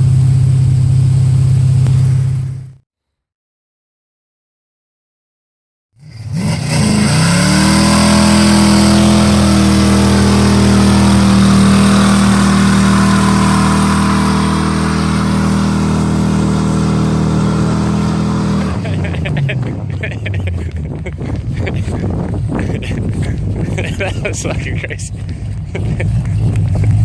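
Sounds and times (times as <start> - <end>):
car engine revving loudly: 6.0 - 23.0.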